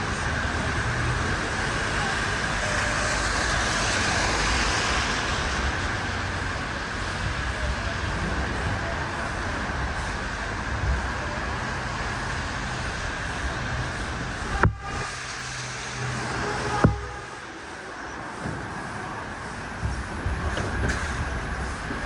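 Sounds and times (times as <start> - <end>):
low traffic rumble: 0.0 - 22.0
passing vehicles hiss: 0.0 - 22.0.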